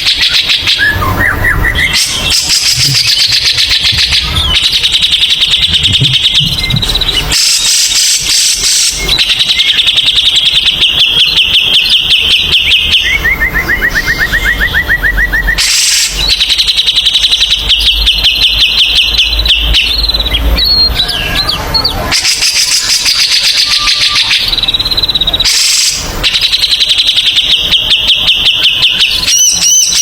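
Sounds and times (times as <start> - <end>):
lower rattling bird calls: 0.0 - 13.3.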